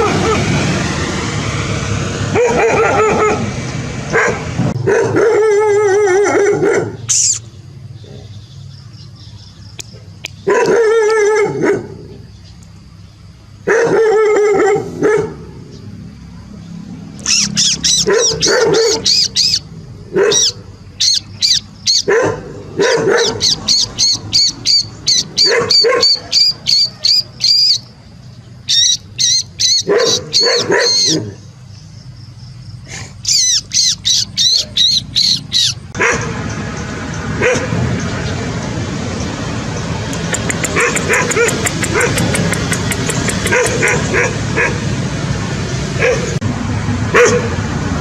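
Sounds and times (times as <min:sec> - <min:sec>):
puppies yelping: 0:17.2 - 0:27.9, 0:28.6 - 0:31.4, 0:33.2 - 0:36.3, 0:40.2 - 0:44.8.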